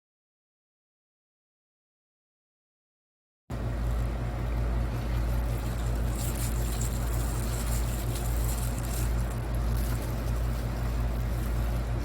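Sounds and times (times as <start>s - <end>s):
motor rumbling with hiss: 3.5s - 12.0s.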